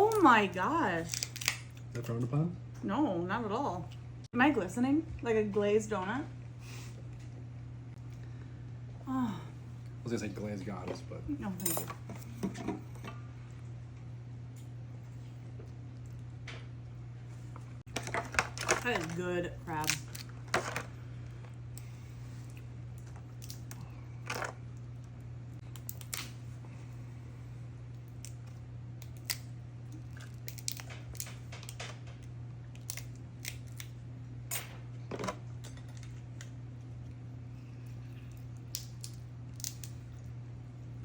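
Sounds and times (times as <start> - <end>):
crab shells cracking: 1.1 - 1.9, 19.8 - 20.9, 22.9 - 26.4, 28.0 - 34.0, 38.3 - 40.2.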